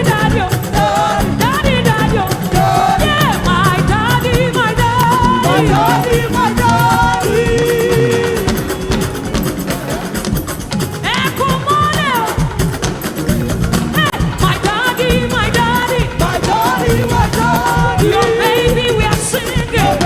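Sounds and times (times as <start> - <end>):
band playing steady beat: 0.0 - 20.0
solo singer with vocal runs: 0.0 - 20.0.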